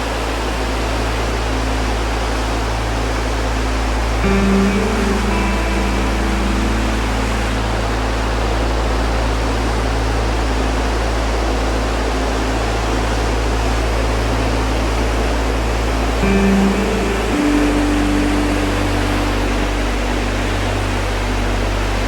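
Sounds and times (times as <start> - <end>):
low hum: 0.2 - 22.0
held music notes: 3.3 - 11.3, 14.1 - 22.0.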